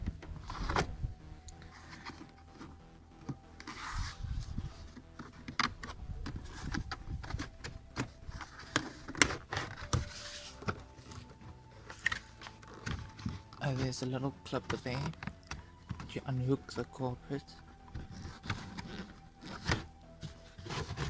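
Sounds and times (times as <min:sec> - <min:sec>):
carpet lining rustling: 0:17.6 - 0:21.0.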